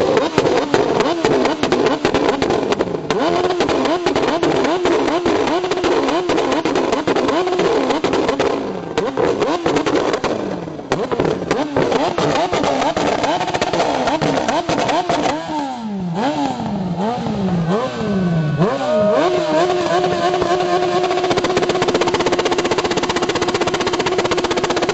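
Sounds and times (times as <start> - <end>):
exhaust pops and cracks: 0.0 - 15.4, 20.3 - 24.9
engine revving loud exhaust: 0.0 - 24.9.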